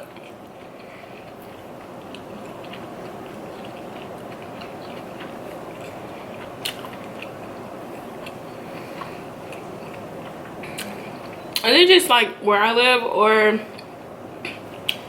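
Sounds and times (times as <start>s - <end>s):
chewing and biting: 0.0s - 11.6s
background hum: 0.0s - 15.0s.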